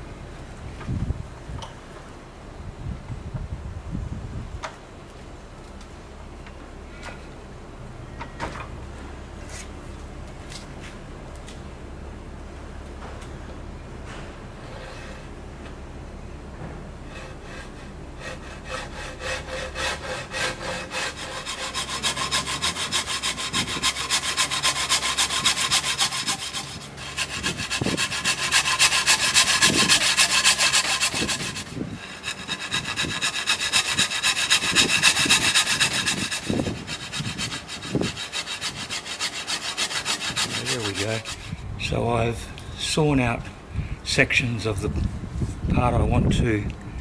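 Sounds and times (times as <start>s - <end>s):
saw cutting wood: 17.1s - 41.6s.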